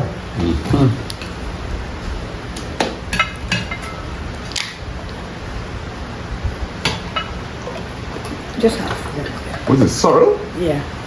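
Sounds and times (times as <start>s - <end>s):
low background hum: 0.0s - 11.0s
dishes and cutlery clinking: 3.1s - 4.8s, 6.9s - 10.4s.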